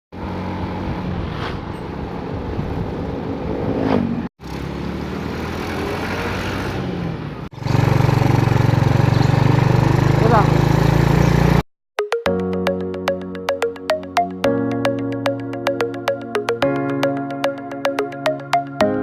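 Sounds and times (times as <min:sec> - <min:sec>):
vehicle engine revving: 0:03.7 - 0:11.6.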